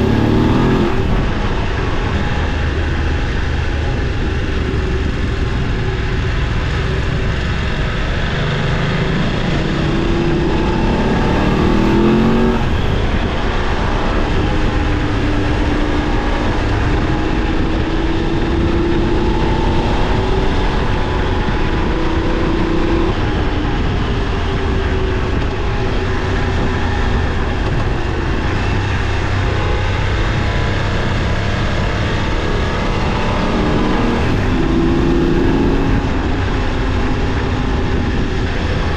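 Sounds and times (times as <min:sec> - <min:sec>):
motorcycle engine running: 0:00.0 - 0:38.9
steady rushing noise: 0:00.0 - 0:38.9.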